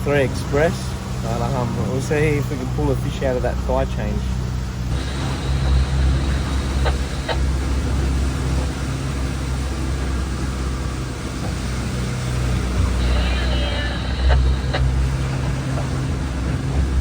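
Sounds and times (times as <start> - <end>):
boat engine droning: 0.0 - 17.0
faint clicks: 4.9 - 8.7, 12.8 - 16.0.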